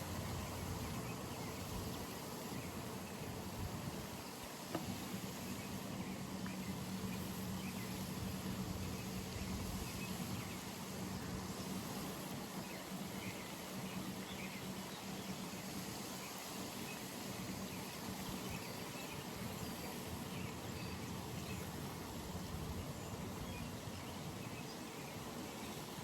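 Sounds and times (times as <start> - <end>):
background hiss: 0.0 - 26.0.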